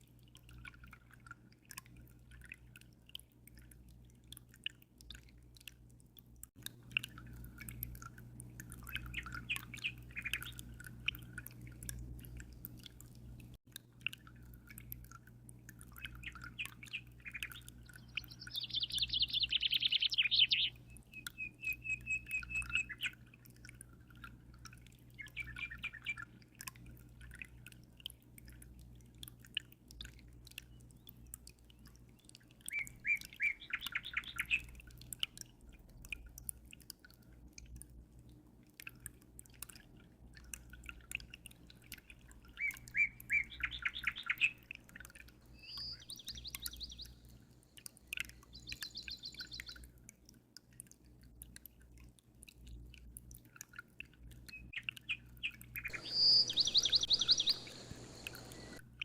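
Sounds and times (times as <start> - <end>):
low steady hum: 0.0 - 43.9, 55.8 - 59.0
dripping trickling water: 0.0 - 59.0
birds singing trills: 9.0 - 10.6, 16.1 - 23.2, 25.2 - 26.3, 32.7 - 34.7, 42.6 - 44.6, 45.5 - 47.2, 48.4 - 49.8, 54.5 - 58.8.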